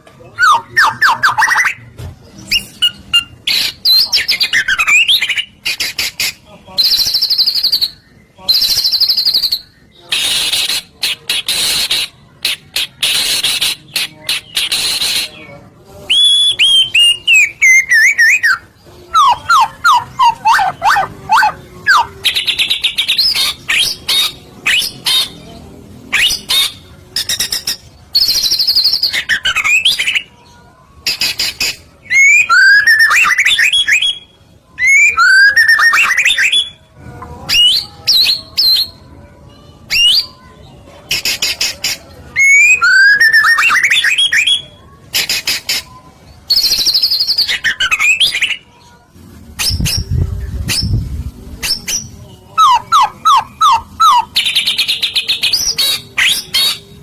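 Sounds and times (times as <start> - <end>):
harsh rasping bird chatter: 2.5 - 15.4, 16.1 - 25.4, 41.1 - 42.7.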